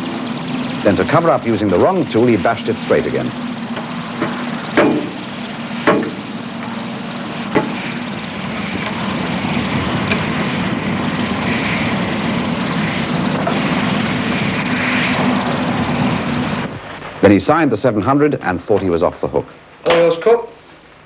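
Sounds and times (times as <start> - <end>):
mechanical hum: 0.0 - 21.0
hammer striking metal: 3.8 - 5.2, 5.8 - 6.8, 7.5 - 7.9.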